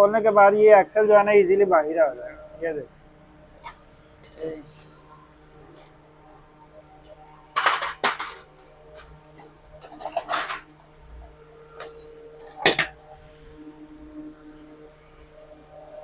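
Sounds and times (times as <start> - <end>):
metal clanking and scraping: 7.6 - 8.6, 9.8 - 10.7.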